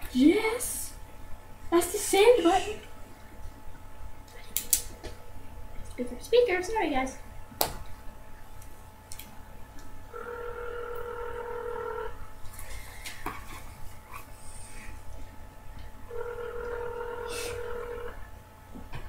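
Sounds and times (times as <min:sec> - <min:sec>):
telephone ringback tone: 0:10.1 - 0:12.2, 0:16.1 - 0:18.2.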